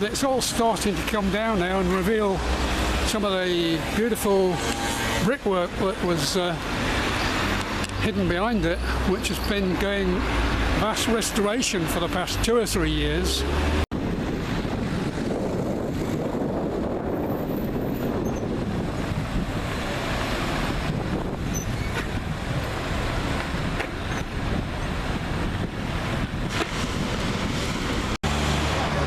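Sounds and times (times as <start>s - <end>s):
road traffic: 0.0s - 29.0s
wind on microphone: 13.5s - 28.2s.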